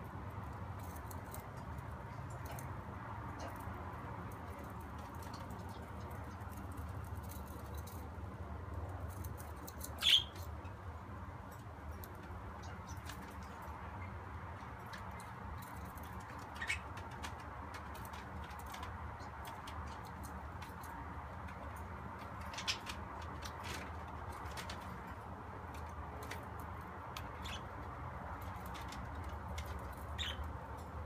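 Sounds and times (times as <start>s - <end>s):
budgerigar chirp: 10.0s - 10.4s.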